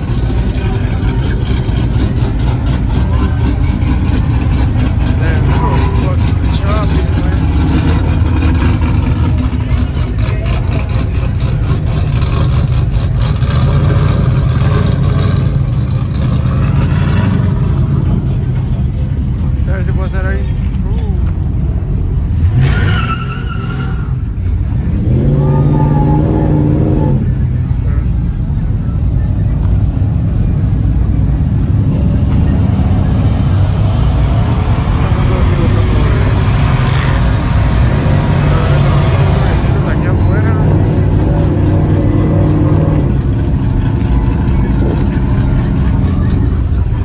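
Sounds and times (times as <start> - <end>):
vehicle engine rumbling: 0.0 - 47.0.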